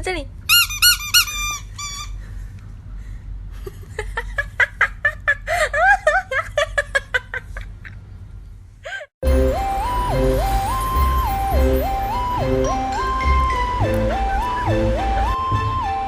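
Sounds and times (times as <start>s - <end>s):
squeaky dog toy squeaking: 0.5s - 2.2s.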